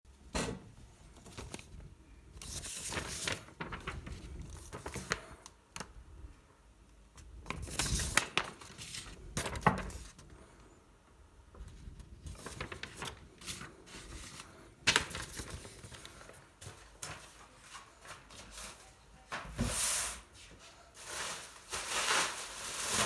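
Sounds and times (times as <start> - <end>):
rustling and crinkling: 1.1 - 5.4, 11.5 - 23.0.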